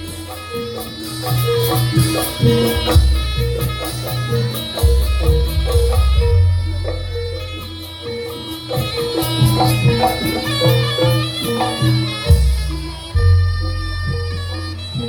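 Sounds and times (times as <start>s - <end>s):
drumming: 0.0s - 15.0s
tuned percussion melody: 0.0s - 15.0s.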